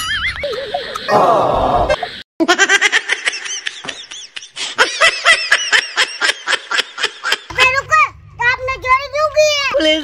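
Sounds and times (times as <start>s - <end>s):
high-pitched laughter: 0.0s - 1.2s, 1.9s - 7.5s.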